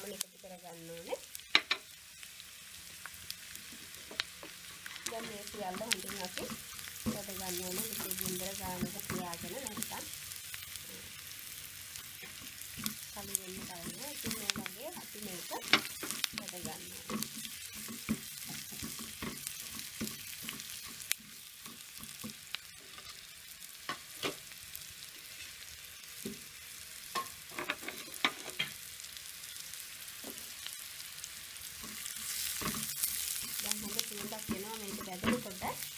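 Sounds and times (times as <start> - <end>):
vegetables sizzling in oil: 0.0 - 35.9
spatula tapping and scraping pan: 12.2 - 14.8, 15.6 - 22.4, 31.8 - 35.6.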